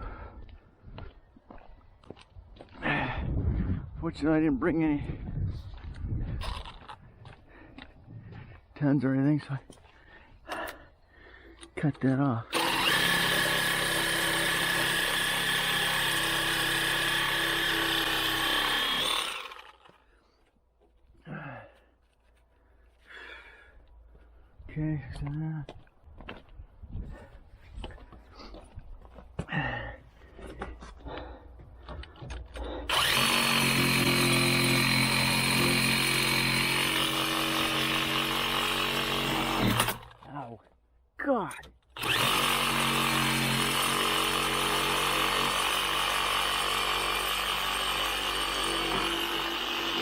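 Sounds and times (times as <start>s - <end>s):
power tool cutting steel: 12.5s - 19.9s, 32.9s - 40.1s, 42.0s - 50.0s.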